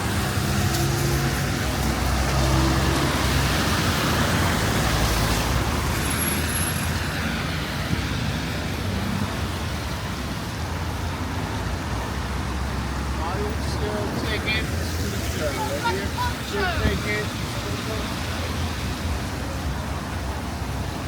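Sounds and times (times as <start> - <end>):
traffic rumble: 0.0 - 21.0
vehicle passing on wet road: 0.0 - 21.0.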